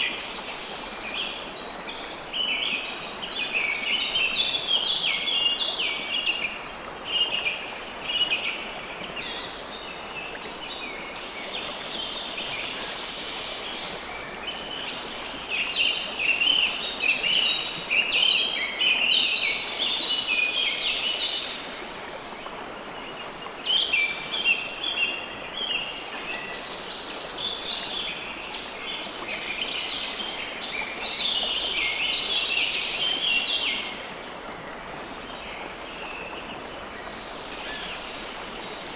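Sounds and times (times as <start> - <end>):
running water hiss: 0.0 - 38.9
songbirds chirping: 0.0 - 38.9.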